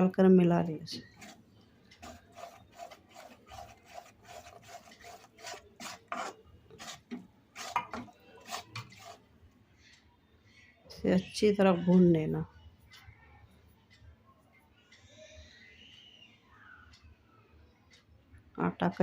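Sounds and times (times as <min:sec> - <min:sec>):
spatula scraping a pan: 0:01.0 - 0:09.3.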